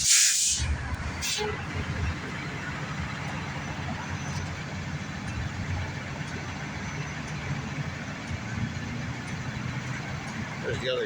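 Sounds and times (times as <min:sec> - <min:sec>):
street noise: 0:00.0 - 0:11.0
vehicle engine idling: 0:00.0 - 0:11.0.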